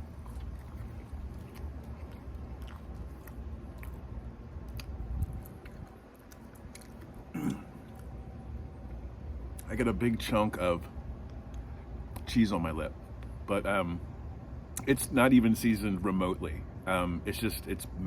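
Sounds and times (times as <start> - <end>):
man chewing food: 0.0 - 9.7
low hum: 0.0 - 14.7
wet mouth clicks: 0.1 - 4.0, 4.6 - 8.1
man murmuring with mouth full: 7.3 - 7.9.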